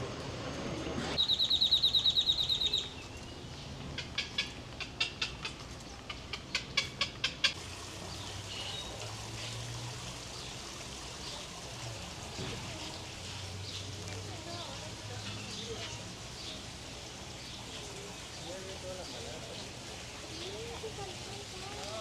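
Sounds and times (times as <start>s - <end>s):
bird trilling: 1.2s - 3.1s.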